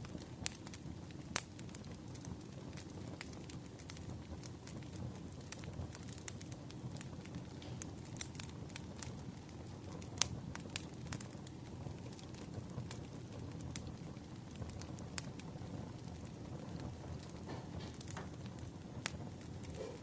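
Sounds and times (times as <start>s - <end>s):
firewood crackling: 0.0s - 20.0s.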